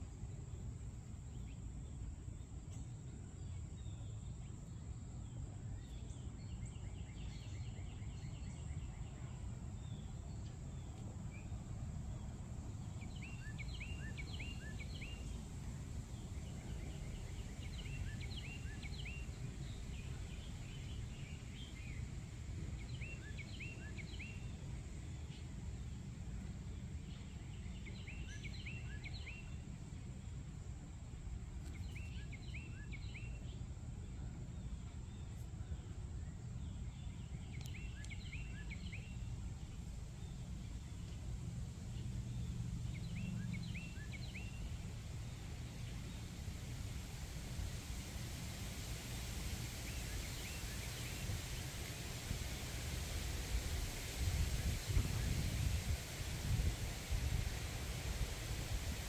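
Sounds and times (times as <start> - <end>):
steady low rumble: 38.7 - 59.0.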